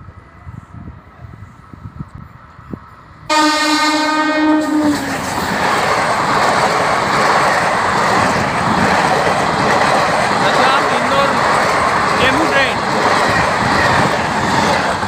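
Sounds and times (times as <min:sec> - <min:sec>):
train horn blast: 0:03.3 - 0:05.1
train wheels clattering on rails: 0:04.8 - 0:15.0.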